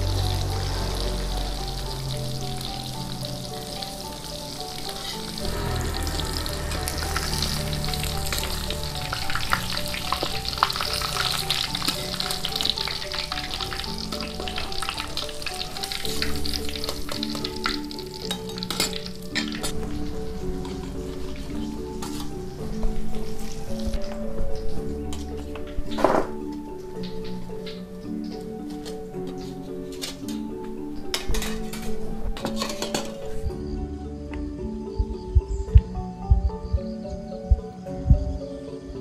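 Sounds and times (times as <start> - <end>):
tofu deep-frying in oil: 0.0 - 24.1
metal spatula scraping wok: 3.5 - 23.7, 28.7 - 30.5, 31.1 - 33.4.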